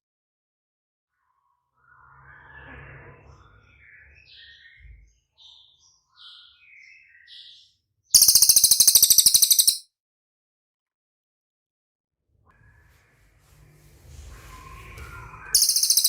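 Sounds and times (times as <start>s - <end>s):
songbird chirping: 3.7s - 9.8s, 14.6s - 16.0s
rapid high bird trill: 8.2s - 9.8s, 15.6s - 16.0s.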